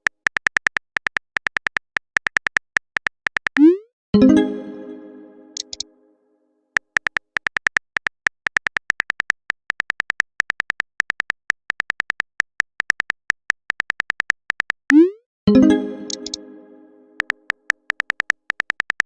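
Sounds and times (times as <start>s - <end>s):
phone keyboard typing clicks: 0.0s - 3.7s, 5.6s - 5.8s, 6.8s - 15.0s, 16.0s - 16.4s, 17.2s - 19.0s
synth chord: 4.2s - 6.0s, 15.5s - 17.3s.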